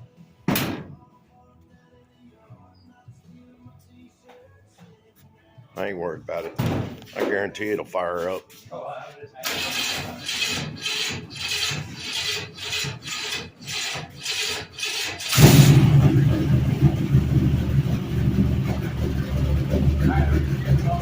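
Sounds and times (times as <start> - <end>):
starter cranking engine: 9.4 - 21.0
car engine running: 14.5 - 21.0.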